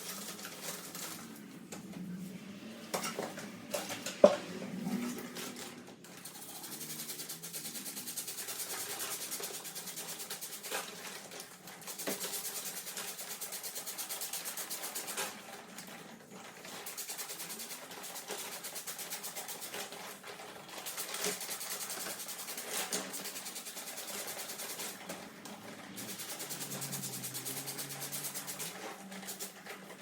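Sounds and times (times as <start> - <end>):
pressure sprayer hissing: 26.0 - 29.5.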